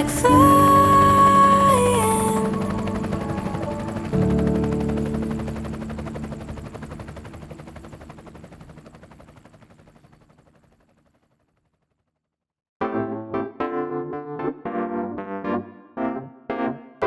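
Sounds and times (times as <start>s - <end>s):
helicopter rotor chop: 0.0s - 11.9s.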